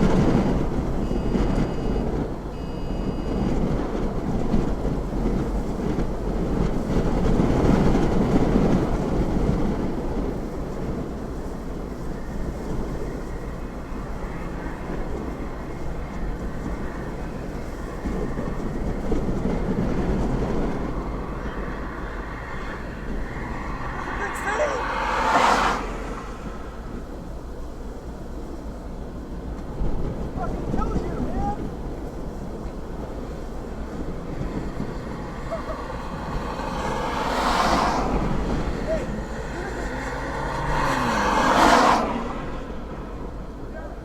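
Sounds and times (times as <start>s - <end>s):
strong wind roaring: 0.0s - 44.0s
short electronic beeps: 1.0s - 3.4s.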